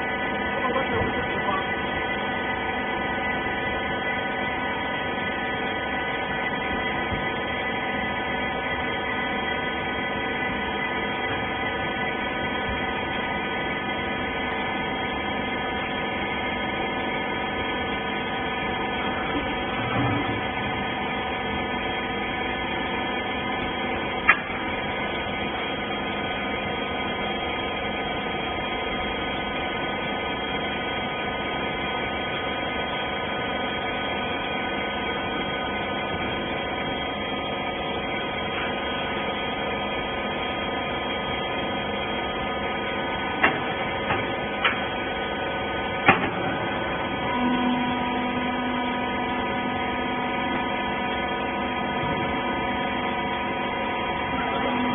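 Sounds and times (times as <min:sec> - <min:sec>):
baler motor and pump hum: 0:00.0 - 0:54.9
second steady tone: 0:47.3 - 0:49.8.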